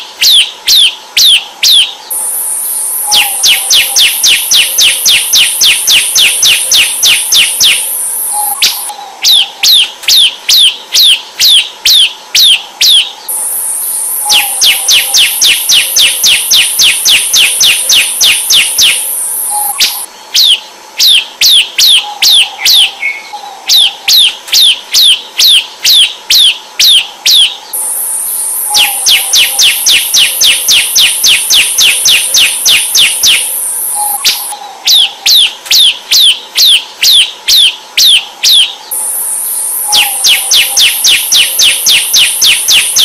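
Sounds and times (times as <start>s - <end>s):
bird song with rapid slurred notes: 0.0s - 43.0s
high-pitched buzz: 2.0s - 8.9s, 13.2s - 20.1s, 27.7s - 34.6s, 38.9s - 43.0s.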